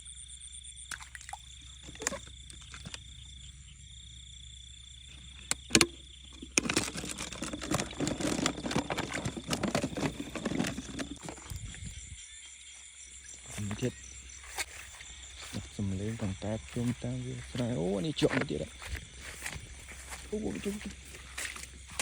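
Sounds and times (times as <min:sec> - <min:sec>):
insects trilling: 0:00.0 - 0:22.0
rustling and crackling: 0:06.4 - 0:11.8.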